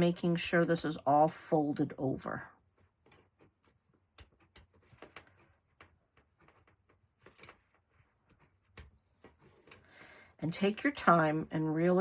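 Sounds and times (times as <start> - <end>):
faint rustles and light taps: 2.6 - 10.0.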